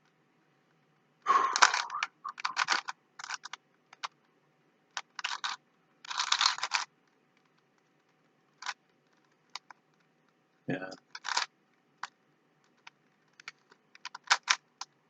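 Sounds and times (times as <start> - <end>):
plastic puzzle cube clicking: 1.4 - 4.3, 4.9 - 10.1, 11.0 - 15.0.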